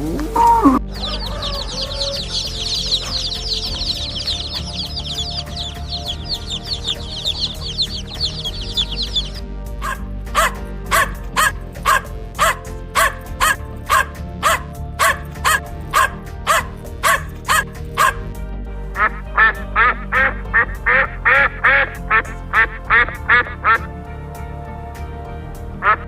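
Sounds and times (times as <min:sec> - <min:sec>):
background music: 0:00.0 - 0:26.0
duck quacks: 0:06.8 - 0:18.2, 0:19.0 - 0:23.9, 0:25.8 - 0:26.0.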